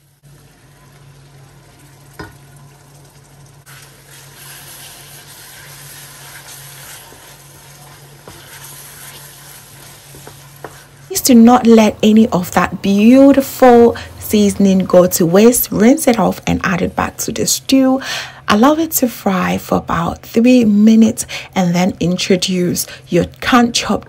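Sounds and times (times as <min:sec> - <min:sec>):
paste sizzling in hot oil: 0:00.0 - 0:11.6
wooden spoon stirring: 0:03.8 - 0:12.6.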